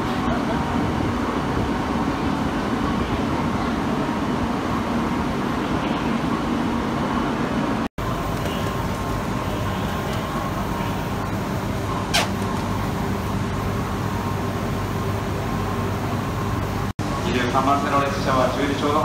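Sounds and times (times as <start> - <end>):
train equipment humming: 6.9 - 16.9.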